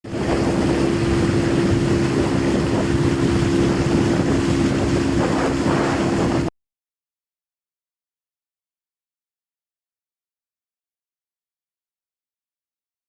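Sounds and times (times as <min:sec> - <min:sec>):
boat engine humming: 0:00.0 - 0:06.5
wind buffeting microphone: 0:00.0 - 0:06.5.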